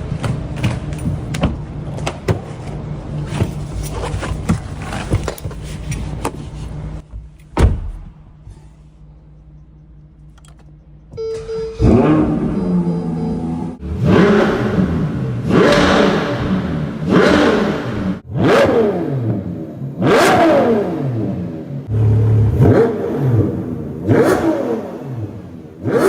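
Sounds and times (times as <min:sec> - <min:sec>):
steady low hum: 0:01.0 - 0:15.5.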